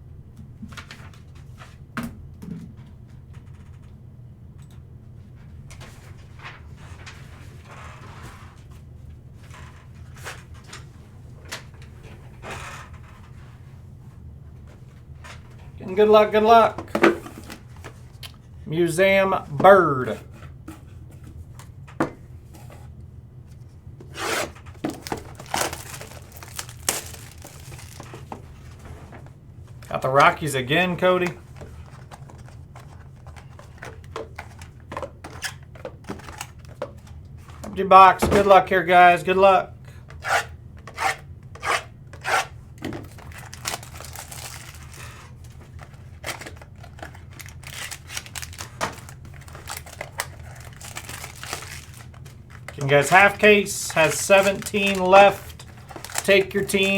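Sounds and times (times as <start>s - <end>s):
steady low hum: 0.0s - 56.9s
cardboard packaging being torn: 24.2s - 28.3s, 43.1s - 45.2s, 46.2s - 53.3s, 53.9s - 56.4s
plastic wrapping crinkling: 24.8s - 28.8s, 43.1s - 56.9s.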